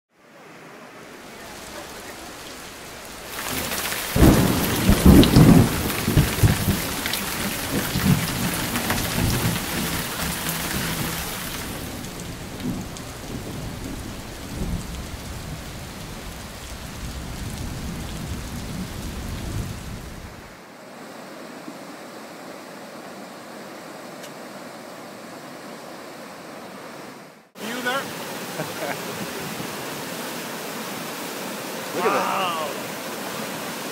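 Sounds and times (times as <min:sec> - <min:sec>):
heavy rain pouring: 0:00.3 - 0:22.0, 0:27.4 - 0:33.9
thunder rumbling: 0:01.4 - 0:20.5.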